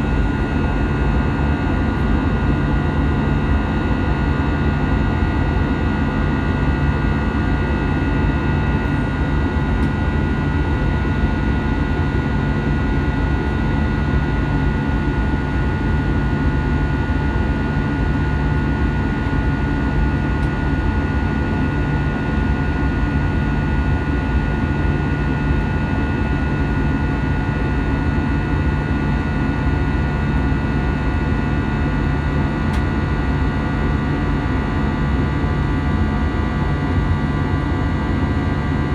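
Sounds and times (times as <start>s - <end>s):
airplane cabin rumble and air rush: 0.0s - 13.6s, 32.0s - 38.8s.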